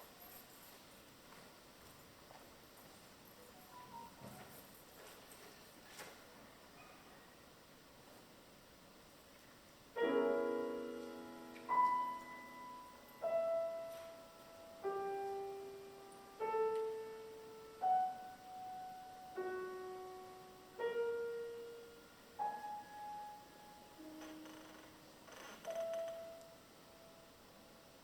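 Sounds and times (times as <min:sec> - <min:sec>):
solo piano music: 0:09.9 - 0:28.0.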